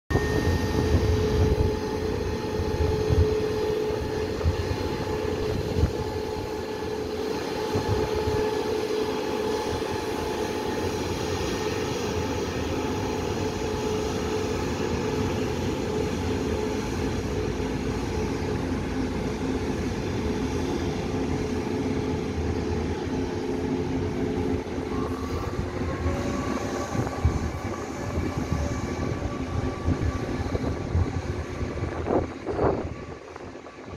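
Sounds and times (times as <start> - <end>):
electric power car whine: 0.1 - 20.4
train hum and rumble: 0.1 - 33.9.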